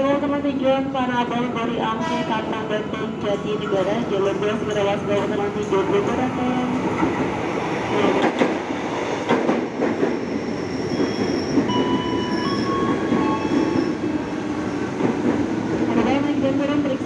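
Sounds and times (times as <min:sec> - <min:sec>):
train brakes squealing: 0:10.2 - 0:14.0.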